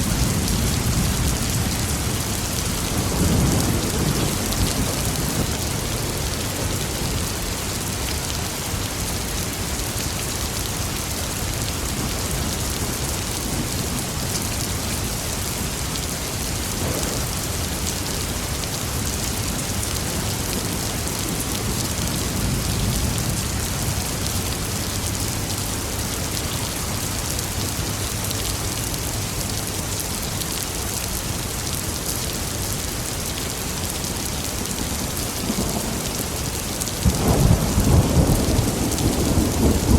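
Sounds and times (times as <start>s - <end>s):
low rumble of thunder: 0.0s - 7.3s, 16.6s - 18.0s, 34.7s - 39.9s
heavy rain falling: 0.0s - 39.9s.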